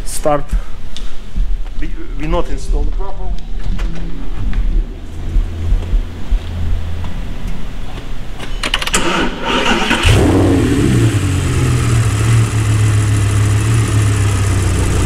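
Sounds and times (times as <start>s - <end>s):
car engine starter cranking: 8.6s - 10.8s
car engine revving and idling: 9.2s - 15.0s.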